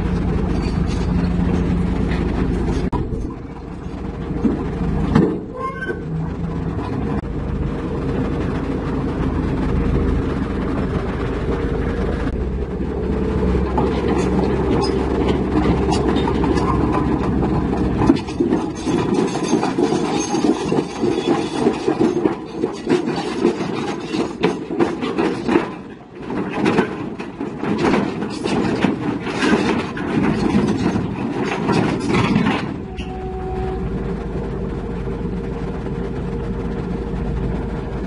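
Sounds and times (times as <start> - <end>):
metallic clanking and knocking: 0.0 - 7.3, 12.2 - 34.4
diesel machinery rumbling: 0.0 - 38.0.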